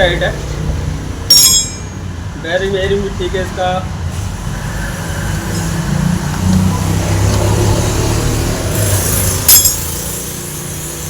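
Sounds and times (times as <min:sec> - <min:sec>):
vehicle engine humming: 0:00.0 - 0:11.0
hiss: 0:04.1 - 0:06.2, 0:08.4 - 0:11.0.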